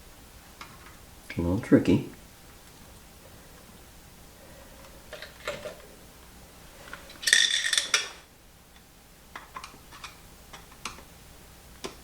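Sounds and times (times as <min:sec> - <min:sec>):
small metal parts clinking: 0:07.2 - 0:08.2.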